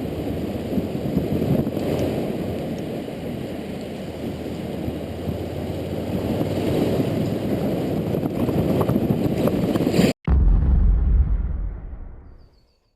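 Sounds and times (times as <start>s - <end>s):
motorcycle road noise: 0.0s - 10.0s
wind rush: 6.0s - 12.6s.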